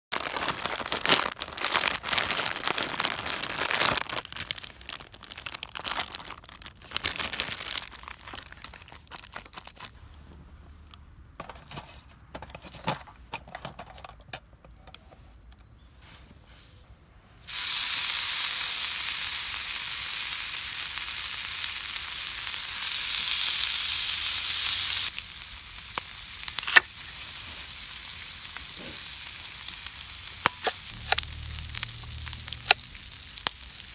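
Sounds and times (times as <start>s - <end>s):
food sizzling in a hot pan: 17.4s - 33.9s
scattered crackles and clicks: 25.9s - 26.9s, 30.4s - 33.9s.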